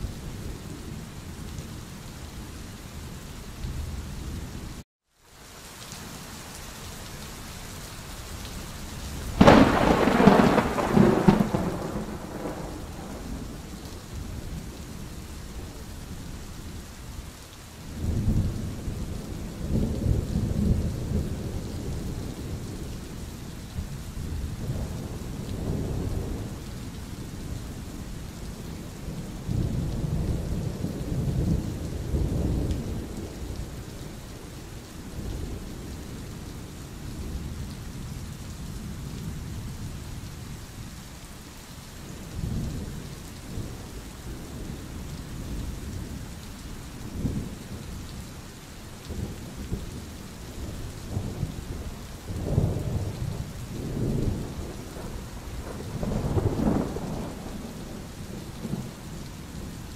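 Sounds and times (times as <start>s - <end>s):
steady rain hissing: 0.0s - 59.9s
thunder rumbling: 9.3s - 15.8s, 49.1s - 59.0s.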